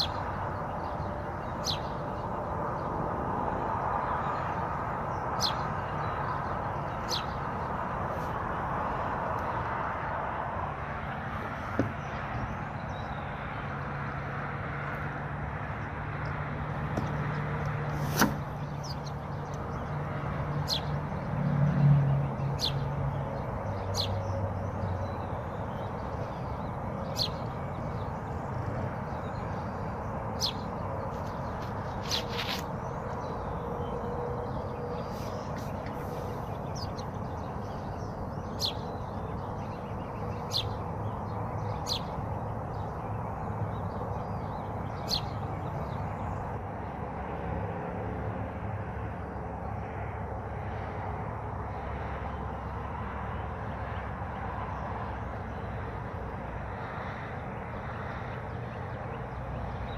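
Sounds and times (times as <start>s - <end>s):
low engine-like hum: 0.0s - 59.9s
bird chirping high: 44.2s - 45.7s.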